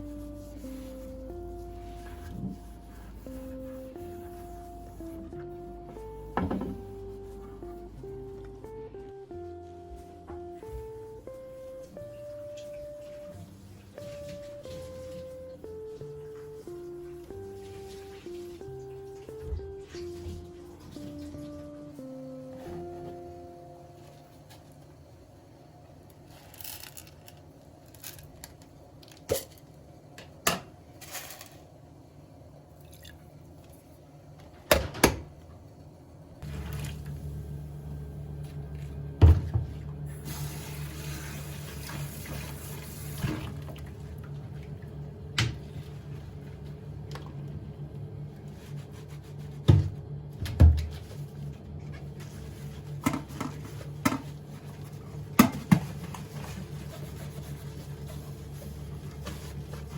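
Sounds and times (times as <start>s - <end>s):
steady low hum: 0.0s - 30.2s, 35.4s - 59.9s
water running from a tap: 40.2s - 43.8s.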